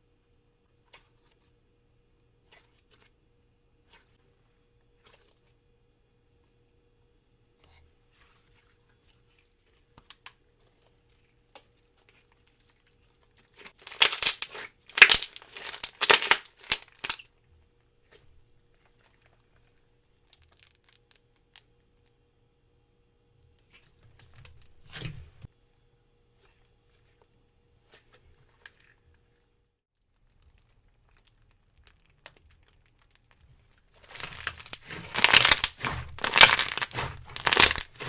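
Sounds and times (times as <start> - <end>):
crisp crackling and crunching: 12.0 - 17.3, 18.1 - 22.1, 30.0 - 38.0.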